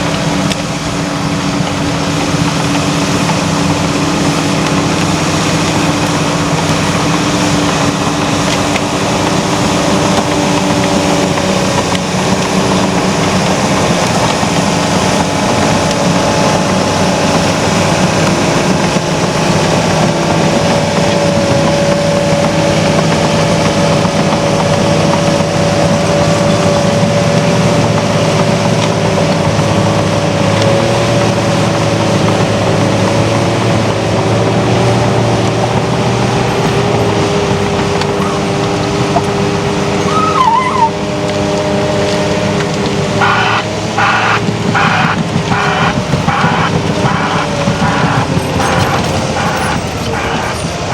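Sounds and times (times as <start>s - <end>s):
heavy diesel machinery running: 0.0s - 50.9s
high-pitched whine: 43.2s - 50.9s.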